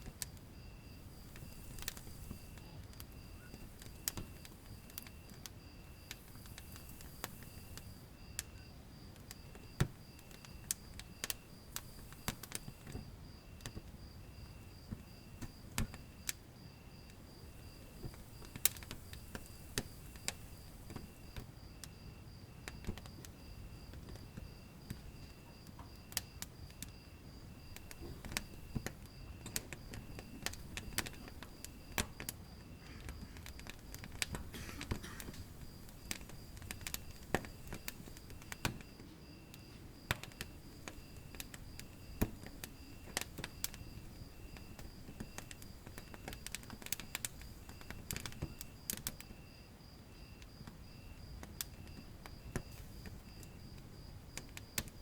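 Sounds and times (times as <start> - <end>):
wood fire crackling and popping: 0.0 - 55.0
faint high chirp: 0.8 - 5.3.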